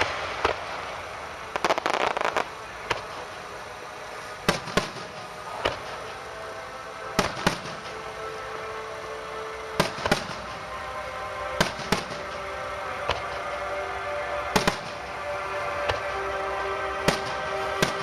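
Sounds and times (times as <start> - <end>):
fireworks bursting in sharp bangs: 0.0 - 3.3, 4.2 - 6.2, 7.2 - 8.0, 9.8 - 10.6, 11.6 - 12.4, 14.5 - 15.0, 17.0 - 18.0
music playing: 0.0 - 18.0.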